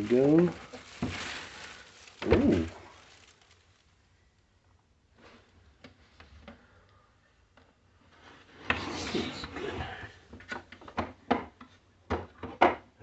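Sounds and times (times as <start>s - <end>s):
rustling and handling: 0.0s - 4.2s.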